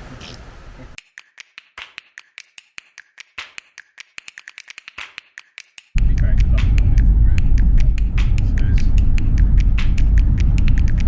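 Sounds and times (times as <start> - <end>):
outdoor noise: 0.0 - 1.0
rapid sharp clicks: 1.0 - 11.0.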